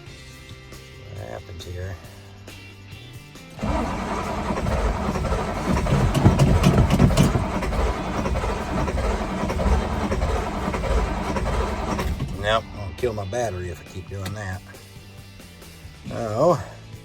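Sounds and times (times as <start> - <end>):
diesel engine cranking: 3.6 - 14.7.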